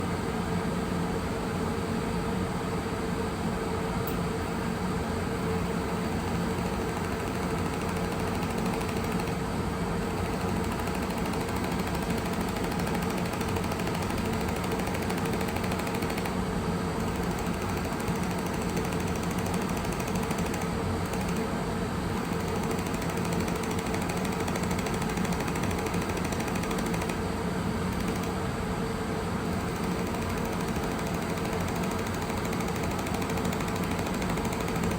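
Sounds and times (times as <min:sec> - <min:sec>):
machine humming: 0:05.3 - 0:34.9
fast even ticking: 0:06.0 - 0:09.4, 0:10.1 - 0:16.4, 0:17.0 - 0:21.5, 0:22.2 - 0:27.2, 0:28.0 - 0:28.4, 0:29.5 - 0:34.9.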